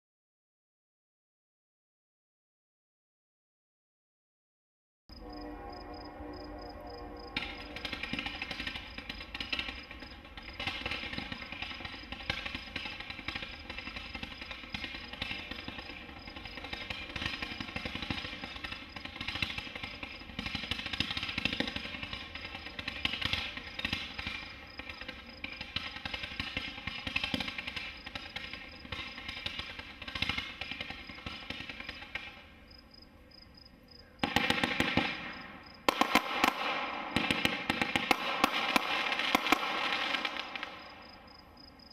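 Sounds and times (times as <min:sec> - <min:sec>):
firework crackling pops: 0:07.4 - 0:32.5, 0:34.2 - 0:41.2.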